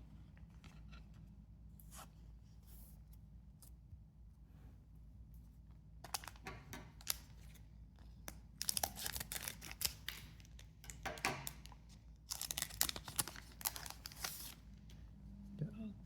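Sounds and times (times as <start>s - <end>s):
trading cards being handled: 8.2s - 15.0s
foil wrapper crinkling and tearing: 8.3s - 14.6s.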